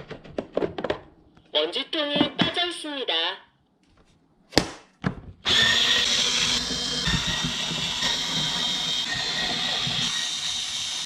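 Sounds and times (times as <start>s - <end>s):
robot vacuum whining and grinding: 5.4s - 11.0s.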